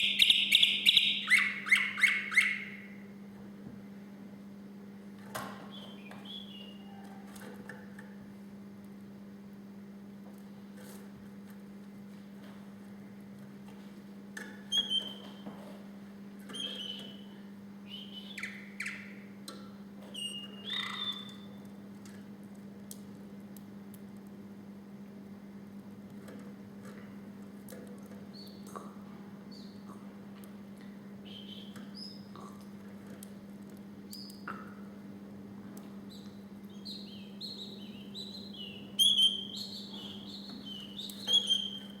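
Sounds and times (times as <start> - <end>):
canary singing: 0.0 - 3.0, 5.7 - 7.2, 14.7 - 15.5, 16.5 - 19.4, 20.1 - 21.6, 31.2 - 32.3, 36.1 - 42.0
low electrical hum: 0.0 - 42.0.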